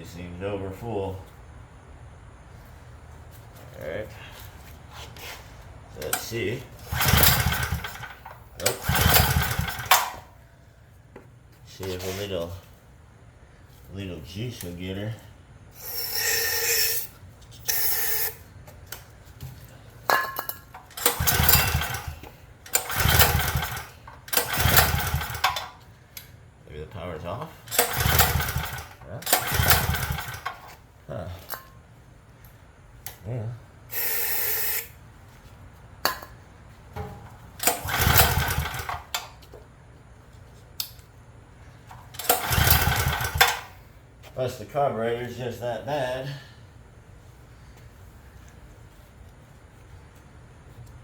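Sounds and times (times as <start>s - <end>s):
generator recoil starter pulls: 6.0s - 10.3s, 20.1s - 26.3s, 27.6s - 30.8s, 37.0s - 39.6s, 41.9s - 43.9s
small engine cranking rumble: 6.0s - 10.4s, 20.1s - 25.9s, 27.6s - 30.8s, 33.9s - 35.0s, 37.0s - 39.5s, 41.9s - 43.9s.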